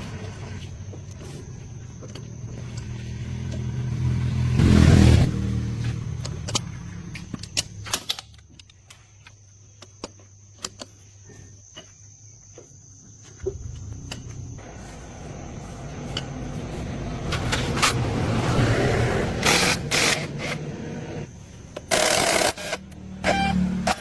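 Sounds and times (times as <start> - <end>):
vehicle engine revving: 2.5 - 7.2, 13.6 - 21.4.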